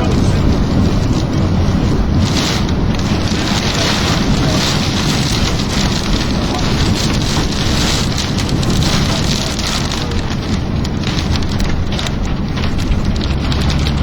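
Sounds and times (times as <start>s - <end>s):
heavy rain on vehicle roof: 0.0s - 14.0s.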